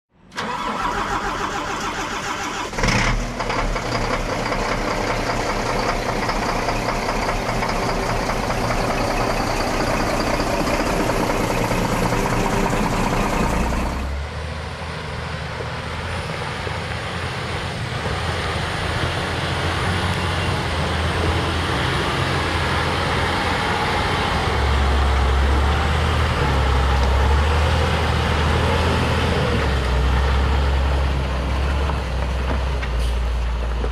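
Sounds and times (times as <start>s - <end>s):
truck diesel engine running: 0.3s - 15.0s.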